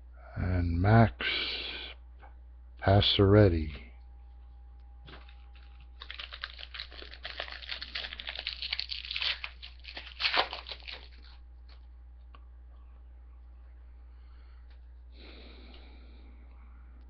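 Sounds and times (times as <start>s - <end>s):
wrapper tearing and crinkling: 5.1s - 11.4s.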